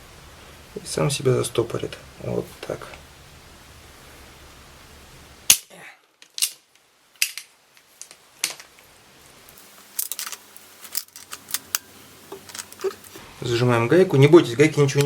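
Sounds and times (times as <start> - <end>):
metal tools clinking on engine parts: 10.0 - 13.2.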